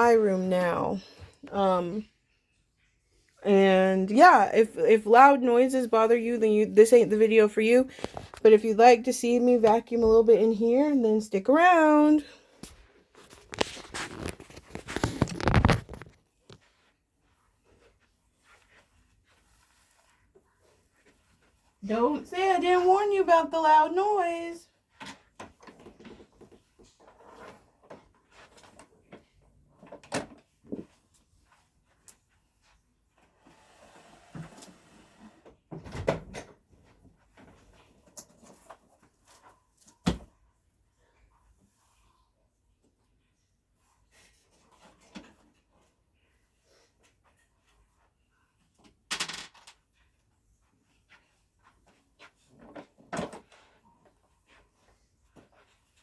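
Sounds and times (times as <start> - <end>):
faint small knocks and rustles: 12.4 - 21.8, 24.7 - 33.5, 35.4 - 56.0.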